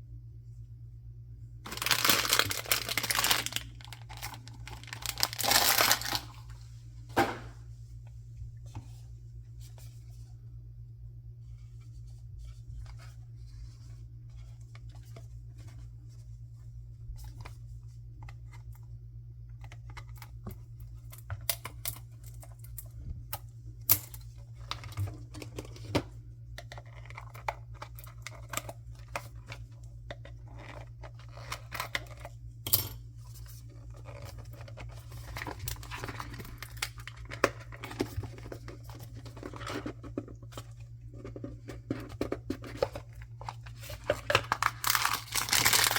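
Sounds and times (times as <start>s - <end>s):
low electrical hum: 0.0s - 45.9s
wrapping crinkling and tearing: 1.6s - 6.5s, 33.6s - 41.3s, 42.6s - 45.9s.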